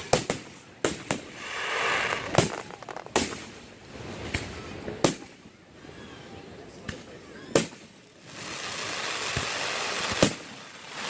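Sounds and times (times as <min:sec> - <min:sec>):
fireworks hissing crackle: 0:00.0 - 0:04.8, 0:07.6 - 0:11.0
fireworks bangs: 0:00.0 - 0:05.4, 0:07.5 - 0:11.0.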